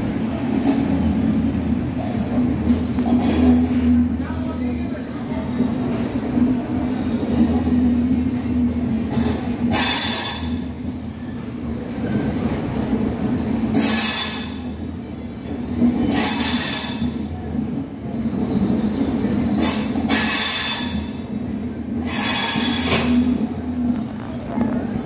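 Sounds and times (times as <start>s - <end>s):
train coaches rumbling: 0.0s - 25.0s
high wheel squealing: 13.7s - 14.9s, 15.9s - 23.5s.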